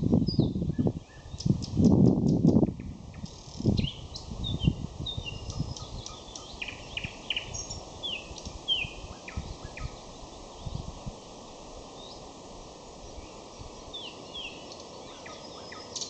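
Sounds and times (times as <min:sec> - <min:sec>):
nightingale singing: 0:00.2 - 0:10.9, 0:13.0 - 0:16.0.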